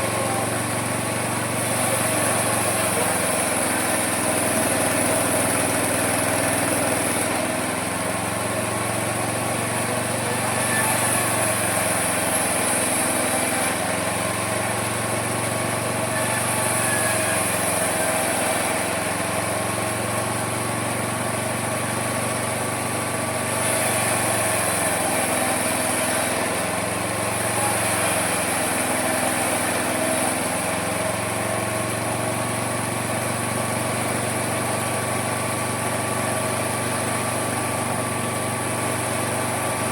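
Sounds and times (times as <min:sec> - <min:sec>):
sawmill cutting wood: 0:00.0 - 0:39.9.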